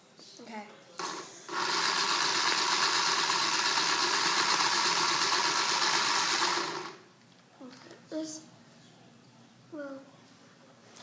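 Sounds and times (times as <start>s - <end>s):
small toy motor spinning: 1.0s - 7.0s.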